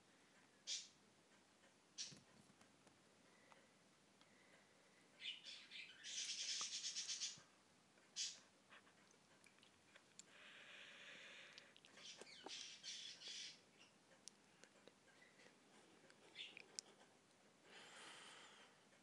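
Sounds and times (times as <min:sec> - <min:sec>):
faint bird chirps: 0:00.6 - 0:01.0, 0:02.0 - 0:02.2, 0:05.2 - 0:07.5, 0:08.2 - 0:08.4, 0:11.9 - 0:14.0, 0:16.2 - 0:16.6.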